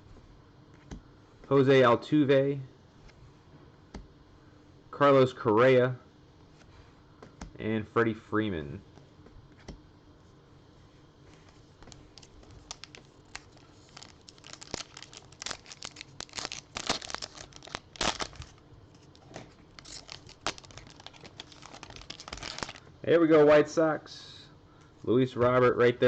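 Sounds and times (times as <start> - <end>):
plastic wrapper crinkling: 11.8 - 22.9.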